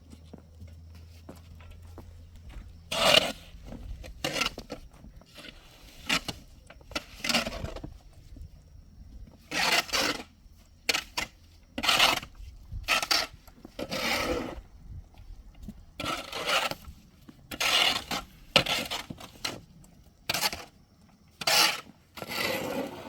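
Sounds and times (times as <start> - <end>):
irregular scraping strokes: 2.9 - 8.3, 9.3 - 14.7, 16.0 - 19.6, 20.3 - 23.0.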